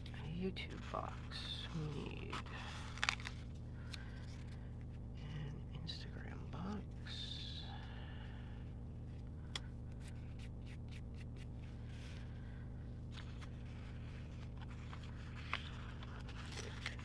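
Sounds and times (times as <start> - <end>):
steady low hum: 0.0 - 17.0
paper stickers rustling and peeling: 0.2 - 4.7, 13.0 - 17.0.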